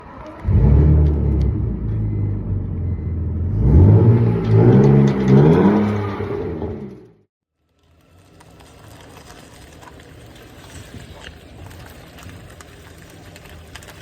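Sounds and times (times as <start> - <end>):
car engine revving: 0.0 - 7.3.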